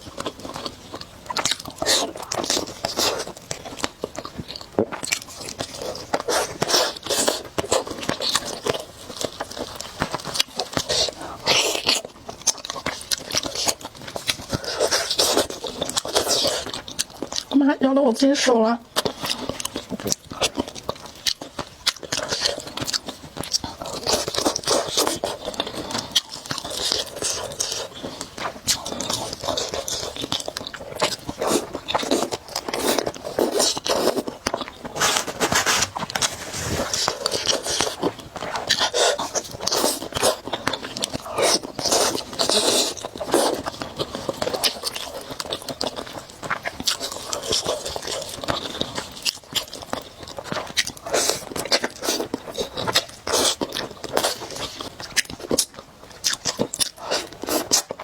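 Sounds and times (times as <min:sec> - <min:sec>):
chewing and mouth smacks: 0:00.0 - 0:17.6, 0:18.9 - 0:58.0
person slurping noodles: 0:34.9 - 0:40.4.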